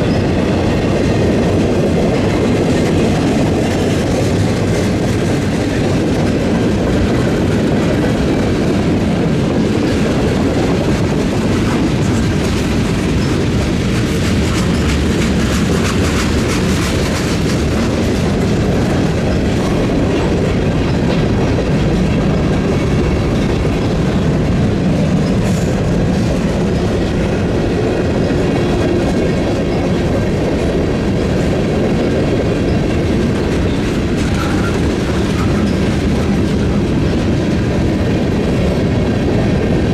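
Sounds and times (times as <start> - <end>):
freight train rumbling: 0.0 - 39.9
wheels clacking on track: 0.0 - 39.9.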